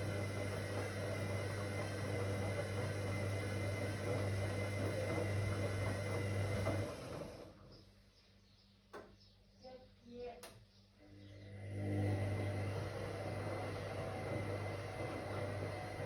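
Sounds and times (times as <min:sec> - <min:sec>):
washing machine humming: 0:00.0 - 0:08.1, 0:11.3 - 0:16.0.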